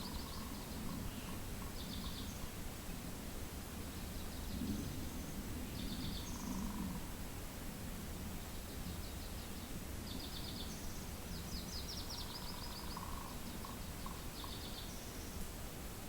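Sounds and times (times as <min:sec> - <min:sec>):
songbirds singing trilled phrases: 0:00.0 - 0:02.5, 0:03.9 - 0:07.1, 0:08.5 - 0:15.4
low rush of wind: 0:00.0 - 0:16.0.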